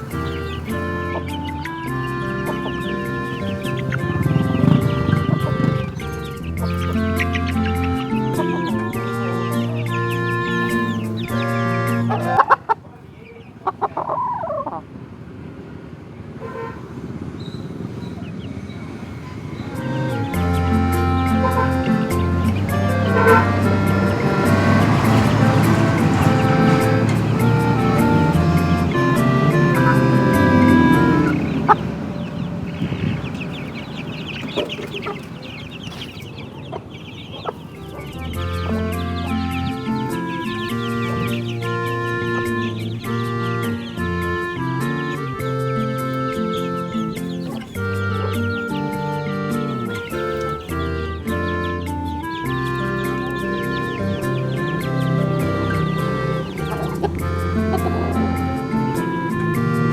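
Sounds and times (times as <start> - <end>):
low rustling: 0.0 - 12.4
background music: 0.0 - 12.5, 19.7 - 32.7, 37.7 - 59.9
chicken wavering call: 0.0 - 14.8, 19.2 - 59.9
chickens clucking: 0.0 - 59.9.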